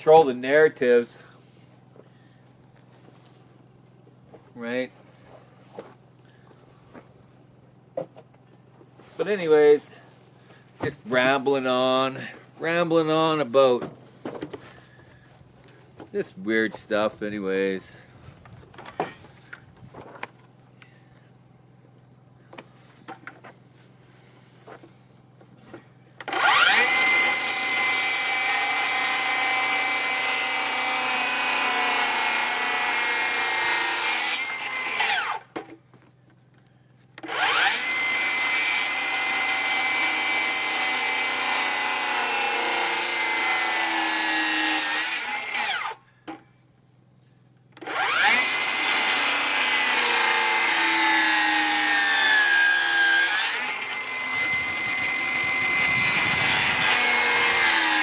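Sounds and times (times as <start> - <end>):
electric power saw cutting wood: 26.2 - 35.5, 37.2 - 46.0, 47.8 - 58.0.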